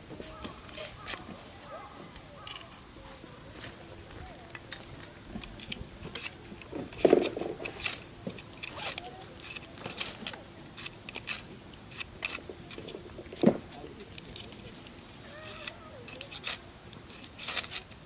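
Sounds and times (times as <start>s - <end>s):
short scrapes and clicks: 15.3s - 18.0s.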